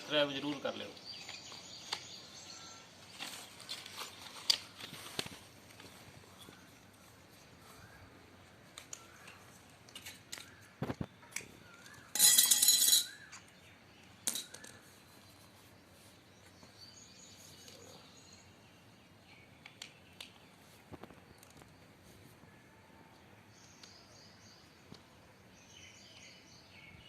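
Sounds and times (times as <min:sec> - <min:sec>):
faint bird chirps: 0:00.9 - 0:04.2, 0:14.4 - 0:24.8.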